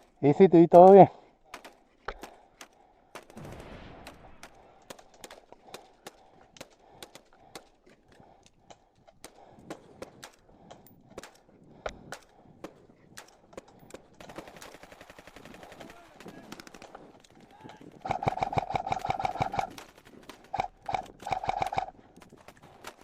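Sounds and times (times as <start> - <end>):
airsoft guns firing single shots: 18.0 - 21.9.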